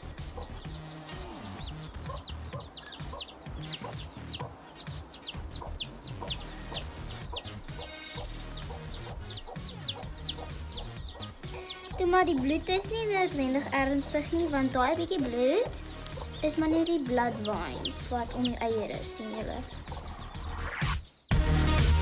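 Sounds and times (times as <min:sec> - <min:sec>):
chick peeping: 0:00.0 - 0:20.9.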